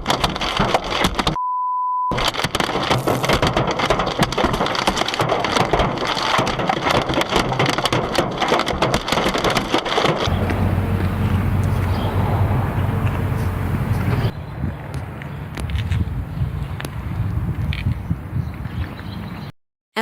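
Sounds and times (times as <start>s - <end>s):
hail pelting a car: 2.2s - 14.3s
steady low rumble: 10.3s - 18.4s.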